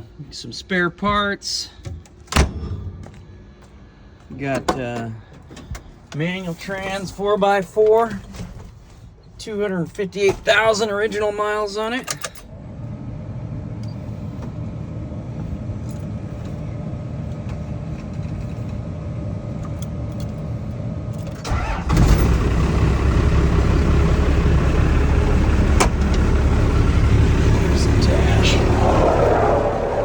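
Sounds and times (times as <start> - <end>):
diesel engine idling: 12.5 - 30.0.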